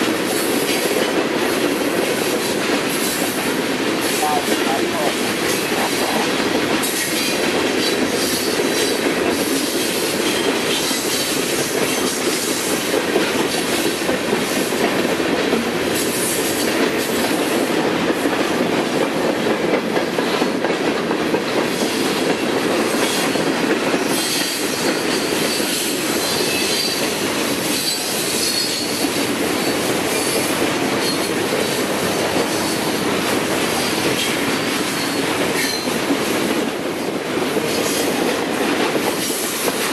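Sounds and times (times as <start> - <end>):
freight train wheels rumbling: 0.0 - 39.9
train wheels squealing: 9.6 - 11.3, 24.0 - 31.3, 34.9 - 36.0.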